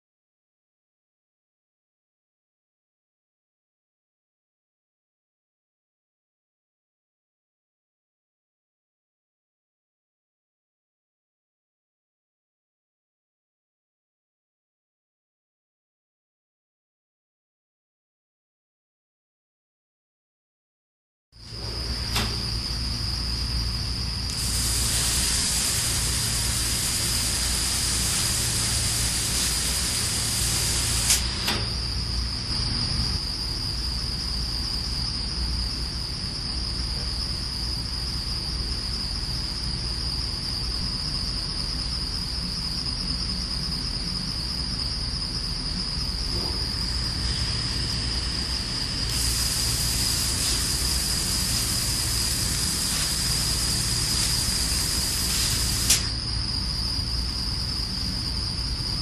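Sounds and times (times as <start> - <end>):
machine high-pitched whine: 21.4 - 59.0
sharp click: 22.1 - 22.4, 31.1 - 31.8, 55.4 - 56.1
water vapour jet hiss: 24.3 - 31.7, 47.0 - 56.1.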